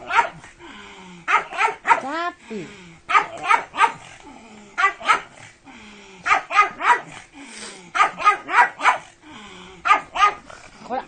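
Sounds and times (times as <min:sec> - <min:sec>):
dog barking excitedly: 0:00.0 - 0:00.4, 0:01.3 - 0:02.2, 0:03.1 - 0:04.1, 0:04.8 - 0:05.4, 0:06.2 - 0:07.2, 0:07.9 - 0:09.1, 0:09.8 - 0:10.5.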